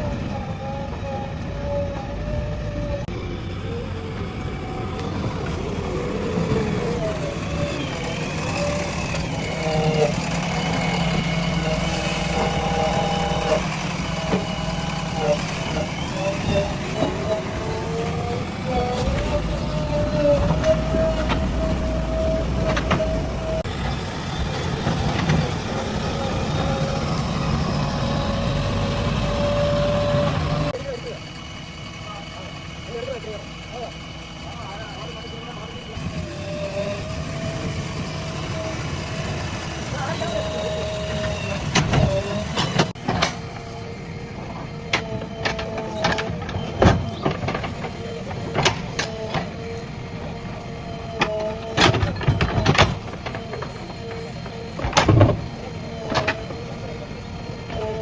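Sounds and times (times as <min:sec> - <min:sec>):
backhoe diesel engine working: 0:00.0 - 0:58.0
knocks and clanks: 0:04.9 - 0:30.7, 0:36.0 - 0:58.0
short squeaks: 0:39.9 - 0:58.0.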